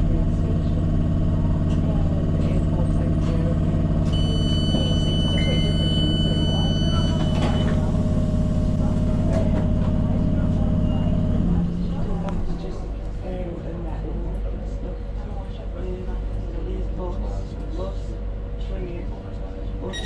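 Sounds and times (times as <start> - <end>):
train running noise: 0.0 - 16.3
high electronic tone: 4.2 - 8.5.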